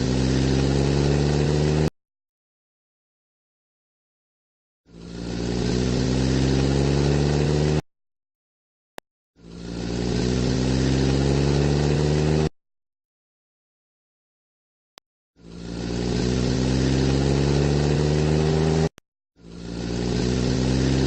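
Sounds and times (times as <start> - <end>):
car engine sound effect: 0.0 - 1.9, 4.9 - 7.8, 9.4 - 12.5, 15.4 - 21.0.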